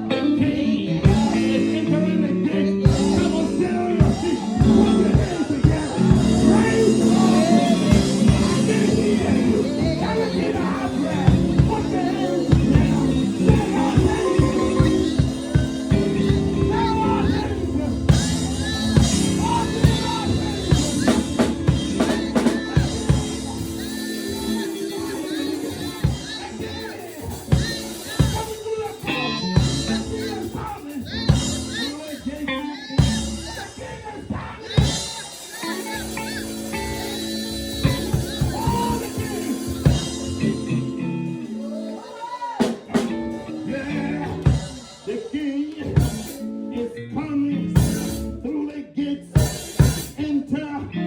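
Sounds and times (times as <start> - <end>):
bass line: 0.0 - 35.1, 35.7 - 41.9, 42.6 - 48.6
voices singing: 0.0 - 51.0
drum kit beat: 1.0 - 2.0, 2.8 - 46.6, 47.8 - 48.4, 49.4 - 50.2
sustained chords: 1.1 - 30.6, 35.7 - 41.8.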